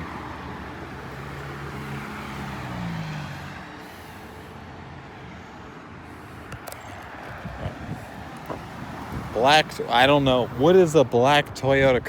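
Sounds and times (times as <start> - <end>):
street traffic noise: 0.0 - 12.0
vehicle engine humming: 4.0 - 10.9.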